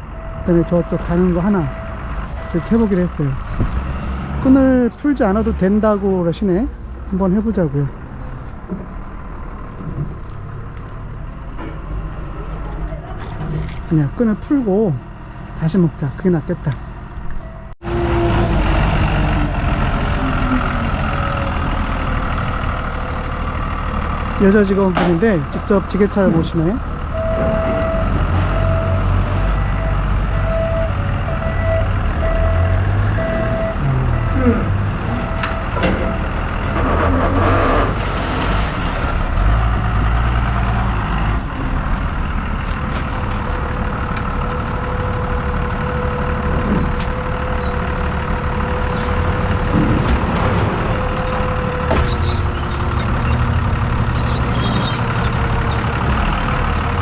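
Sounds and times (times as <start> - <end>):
forklift engine running: 6.8 - 57.0
reversing beeper: 26.8 - 36.4.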